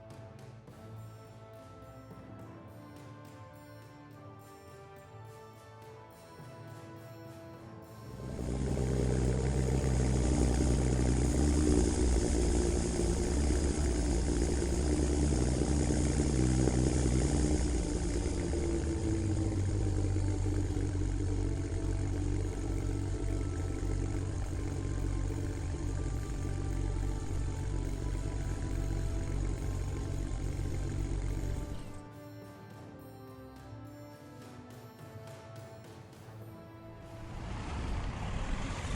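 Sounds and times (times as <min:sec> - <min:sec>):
heavy vehicle engine running: 0:08.1 - 0:32.0, 0:37.1 - 0:38.9.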